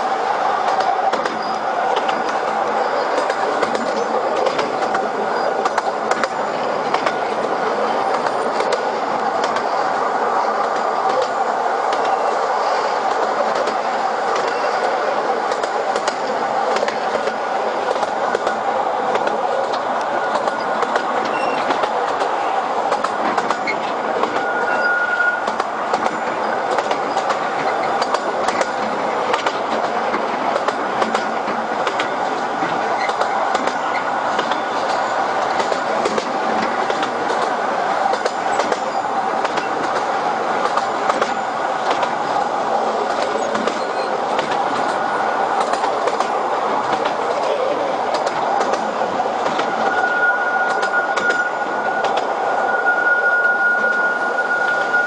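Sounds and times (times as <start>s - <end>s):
train wheels rattling on rails: 0.0s - 55.0s
brief squeal: 20.2s - 21.8s, 23.6s - 25.5s, 49.8s - 55.0s.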